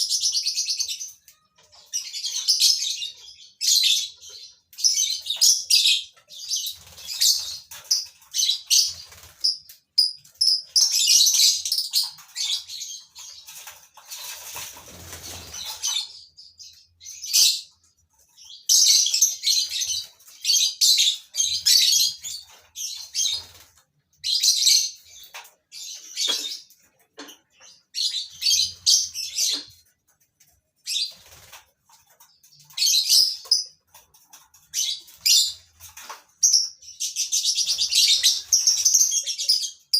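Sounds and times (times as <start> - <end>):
wings flapping: 6.7 - 9.6, 13.2 - 16.0, 31.1 - 32.0.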